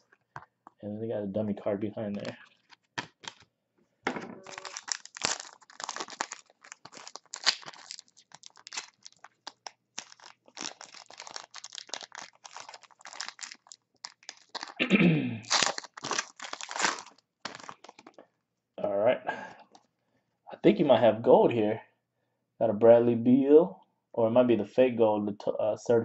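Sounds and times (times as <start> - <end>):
cards being shuffled: 2.1 - 3.4, 4.4 - 14.8
wrapper crinkling and tearing: 2.1 - 3.4, 4.4 - 14.8, 15.4 - 18.2.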